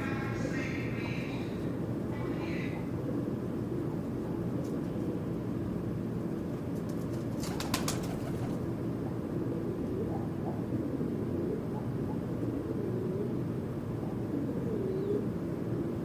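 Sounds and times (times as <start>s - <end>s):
low background rumble: 0.0s - 16.0s
bird wings flapping: 6.7s - 8.7s.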